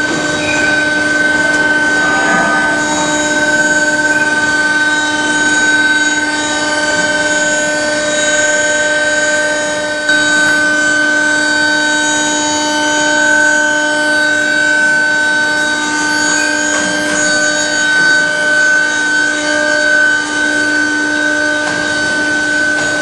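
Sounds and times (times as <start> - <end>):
furnace electrical whine: 0.0 - 23.0
rushing noise: 1.2 - 5.5.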